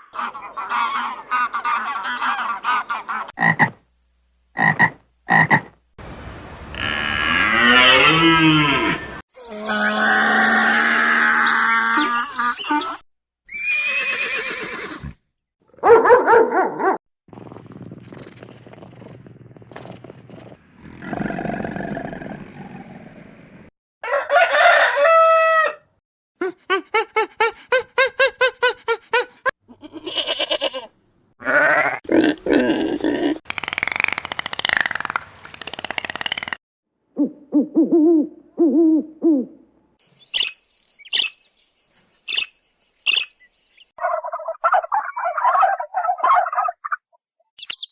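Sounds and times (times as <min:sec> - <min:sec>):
farm animal calls: 0:00.0 - 0:03.8, 0:06.7 - 0:13.0, 0:44.0 - 0:47.0
rooster crowing: 0:24.0 - 0:25.9.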